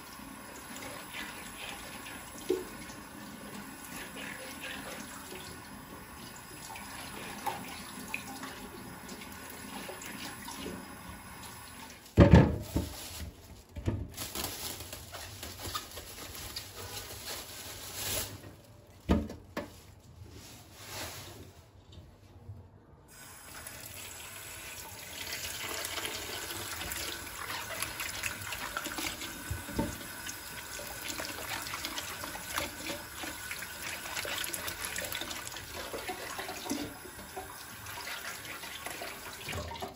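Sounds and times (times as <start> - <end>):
knocks and clatters in a sink: 12.1 - 14.2, 18.4 - 19.8, 28.8 - 30.2, 38.9 - 39.9
tap running into a sink: 28.6 - 30.3.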